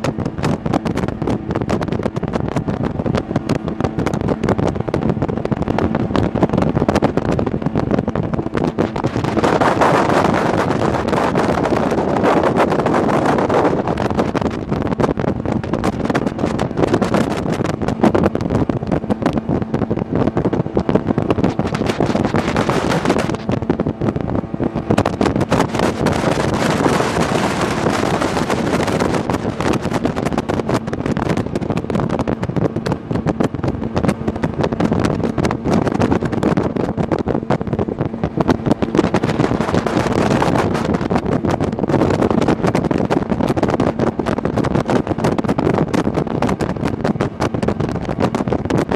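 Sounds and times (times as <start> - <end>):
boat engine drone: 0.0 - 48.9
water rushing: 0.0 - 48.9
wind buffeting microphone: 0.0 - 48.9.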